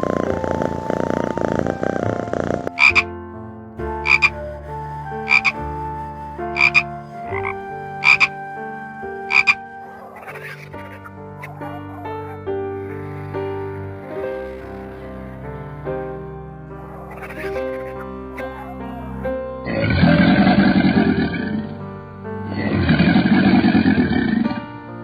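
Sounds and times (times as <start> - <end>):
held animal tones: 0.0 - 3.0, 3.9 - 4.4, 5.0 - 5.7, 6.4 - 12.3
animal buzzing call: 6.6 - 8.3, 9.3 - 9.6
short sharp animal calls: 7.4 - 8.3, 9.3 - 9.6.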